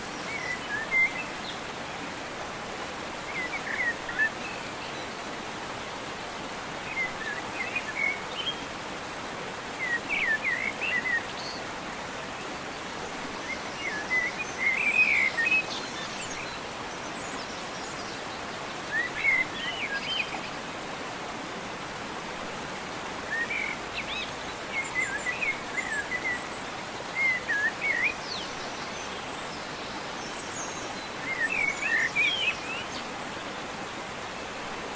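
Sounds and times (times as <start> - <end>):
songbirds chirping: 22.8 - 34.9.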